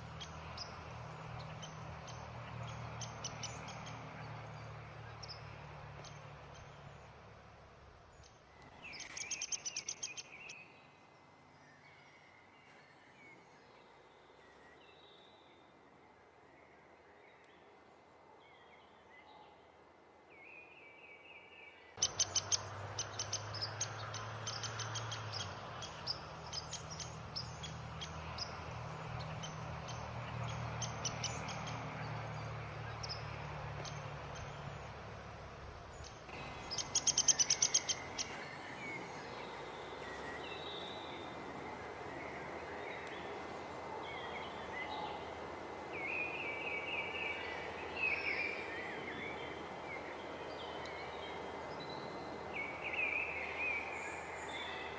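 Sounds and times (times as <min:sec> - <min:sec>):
birds chirping: 0:00.0 - 0:07.1, 0:08.1 - 0:10.7, 0:22.0 - 0:54.9.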